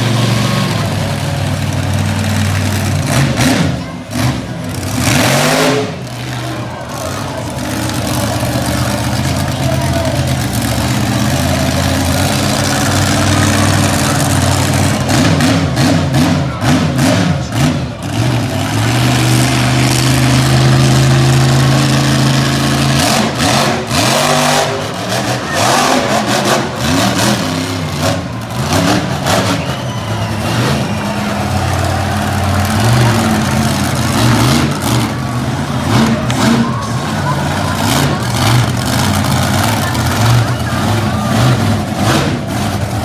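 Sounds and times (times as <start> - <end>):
truck engine revving: 0.0 - 43.0.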